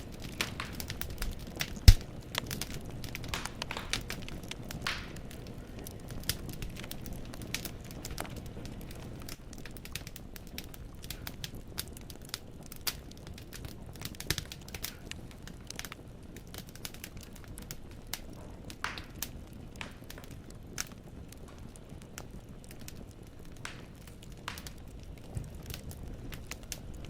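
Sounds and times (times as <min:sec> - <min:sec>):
logs crackling and popping: 0:00.0 - 0:27.0
steady rush of flame: 0:00.0 - 0:27.0.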